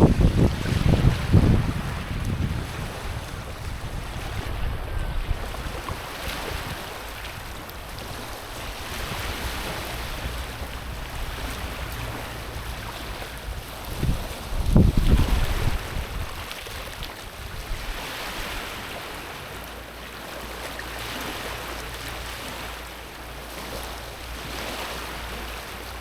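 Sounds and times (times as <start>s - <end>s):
wind buffeting microphone: 0.0s - 19.4s
waves washing over pebbles: 0.0s - 26.0s.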